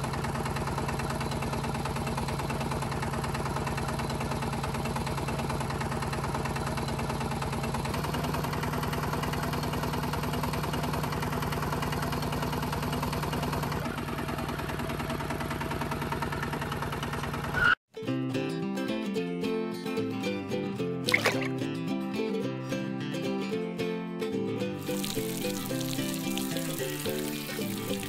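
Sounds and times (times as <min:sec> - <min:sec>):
small engine running: 0:00.0 - 0:17.8, 0:24.8 - 0:28.0.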